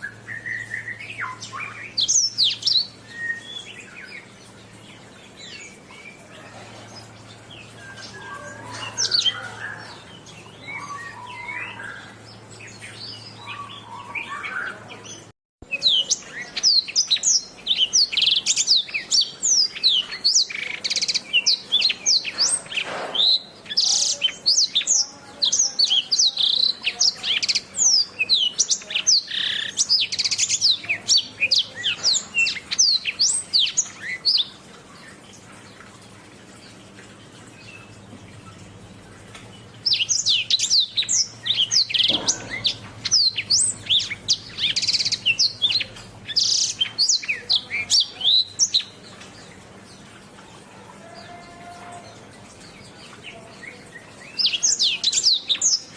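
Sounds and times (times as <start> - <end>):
canary chirping: 39.7 - 49.5.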